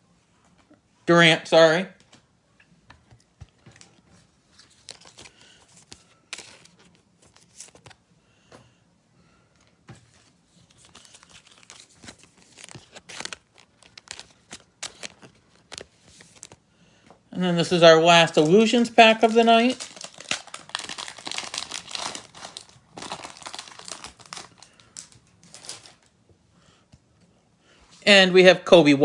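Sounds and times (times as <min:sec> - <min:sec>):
cards and plastic rustling: 0:02.9 - 0:08.8, 0:09.6 - 0:17.1, 0:17.7 - 0:26.2
foil wrapper crinkling and tearing: 0:04.6 - 0:08.0, 0:10.6 - 0:16.6, 0:18.2 - 0:26.1.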